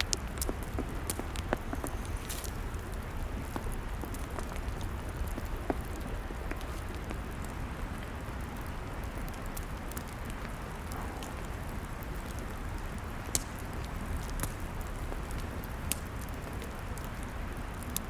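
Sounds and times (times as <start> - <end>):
log fire hissing and popping: 0.0 - 18.0.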